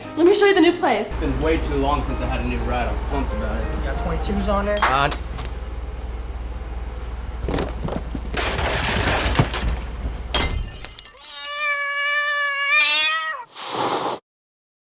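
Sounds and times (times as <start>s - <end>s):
clattering and crashing: 7.4s - 11.8s
cat-like meow: 11.2s - 13.6s.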